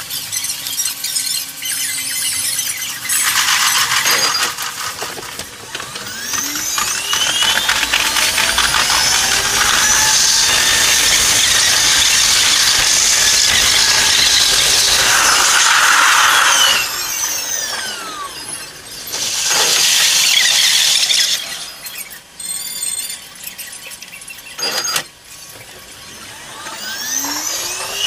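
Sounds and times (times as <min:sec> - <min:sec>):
whines gliding up and down: 0:00.0 - 0:28.0
sped-up electric train rushing: 0:03.1 - 0:21.6.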